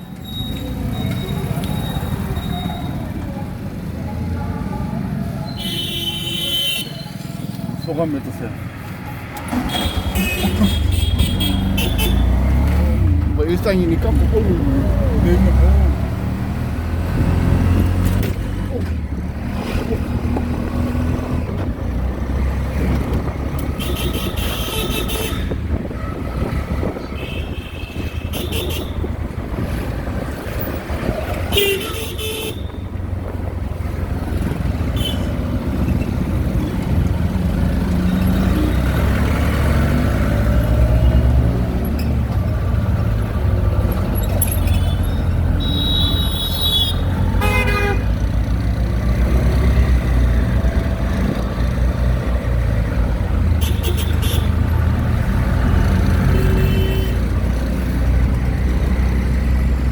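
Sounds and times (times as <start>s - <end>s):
vehicle horns honking: 5.5s - 7.1s, 9.5s - 12.4s, 23.7s - 25.6s, 27.1s - 29.1s, 31.5s - 32.8s, 34.9s - 35.4s, 44.6s - 48.2s, 53.6s - 54.6s, 56.3s - 57.3s
auto-rickshaw engine running: 7.3s - 59.9s.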